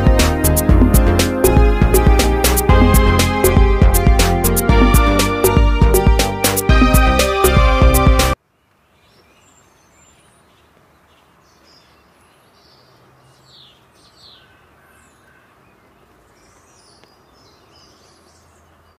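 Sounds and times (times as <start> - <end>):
small birds chirping: 8.4 - 19.0.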